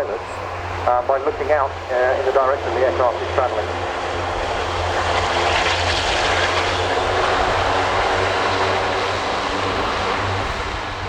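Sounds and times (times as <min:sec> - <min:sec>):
propeller drone: 0:00.0 - 0:11.0.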